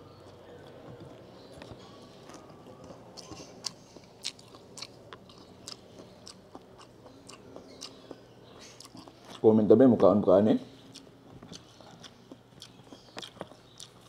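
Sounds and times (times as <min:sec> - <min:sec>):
person chewing food: 0:00.0 - 0:09.4, 0:10.8 - 0:14.0.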